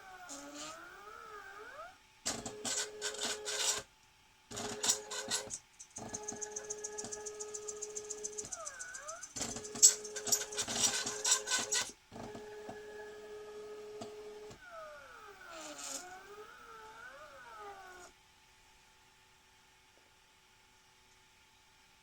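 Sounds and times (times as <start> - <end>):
stepper motor whine: 4.5 - 18.1.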